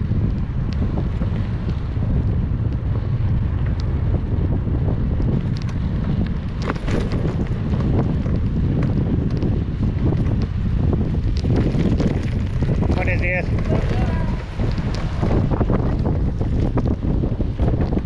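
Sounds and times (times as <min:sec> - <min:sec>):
wind buffeting microphone: 0:00.0 - 0:18.0
light ticks: 0:03.6 - 0:03.9.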